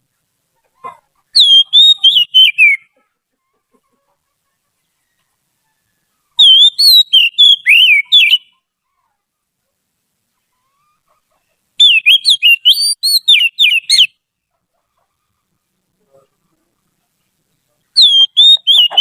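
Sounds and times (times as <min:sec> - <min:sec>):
bird singing whistled notes: 0:01.3 - 0:02.9, 0:06.4 - 0:08.6, 0:11.8 - 0:14.2, 0:18.0 - 0:19.0.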